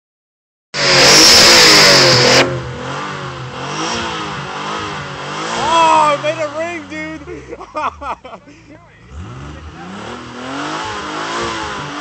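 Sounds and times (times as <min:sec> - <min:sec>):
car engine revving and idling: 0:00.8 - 0:12.0.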